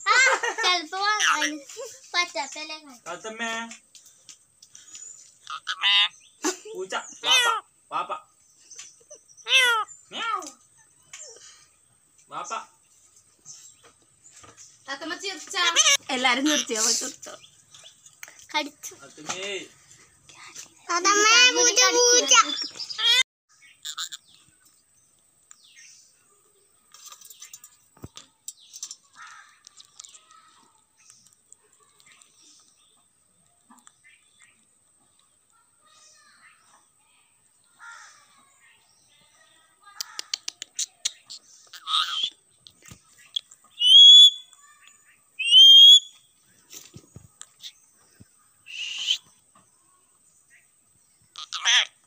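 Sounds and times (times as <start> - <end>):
parrot chirps and whistles: 40.8 - 42.3, 43.7 - 44.6, 45.4 - 46.2, 48.7 - 49.2
parrot whistling: 43.8 - 44.5, 45.4 - 46.2.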